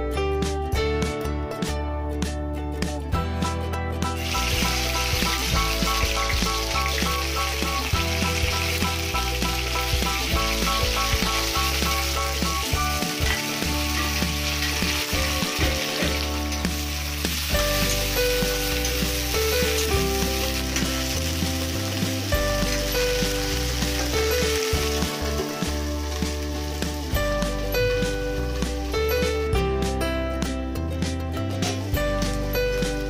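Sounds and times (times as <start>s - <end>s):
light background music: 0.0s - 33.0s
okra sizzling in hot oil: 4.0s - 29.4s.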